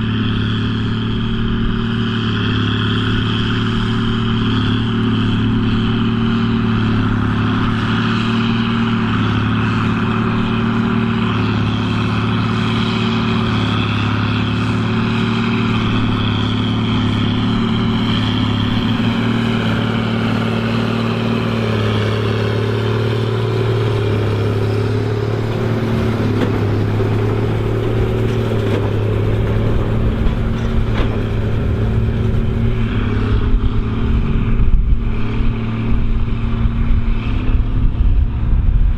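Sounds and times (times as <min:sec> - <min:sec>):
tractor diesel engine under load: 0:00.0 - 0:38.9
low rumble: 0:14.8 - 0:38.9.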